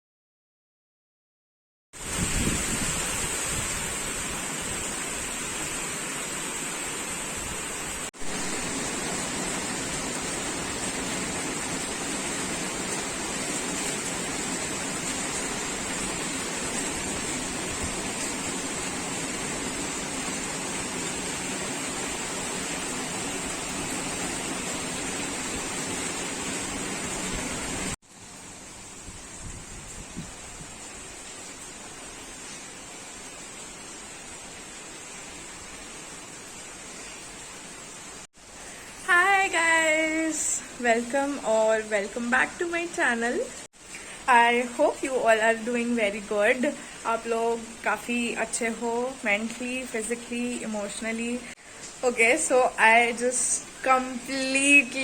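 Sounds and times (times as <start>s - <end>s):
heavy rain falling: 2.0s - 55.0s.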